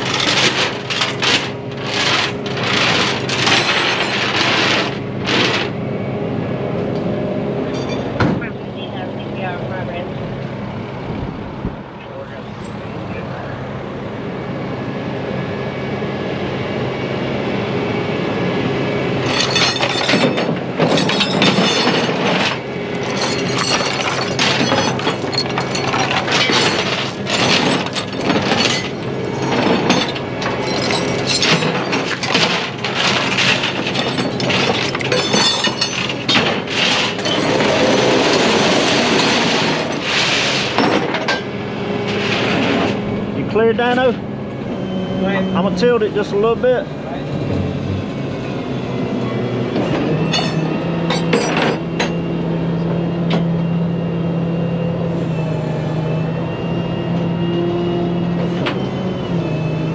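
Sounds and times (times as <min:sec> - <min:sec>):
metal clanks and rattles: 0:00.0 - 0:05.8, 0:07.7 - 0:08.4, 0:19.2 - 0:43.0, 0:49.8 - 0:52.2
heavy truck engine running: 0:00.0 - 0:59.9.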